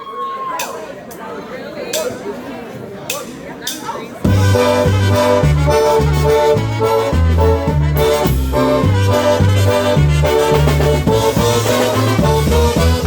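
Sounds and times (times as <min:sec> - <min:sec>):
polka band playing: 0:03.7 - 0:13.0
accordion melody: 0:04.3 - 0:13.0
steady bass beat: 0:04.3 - 0:13.0.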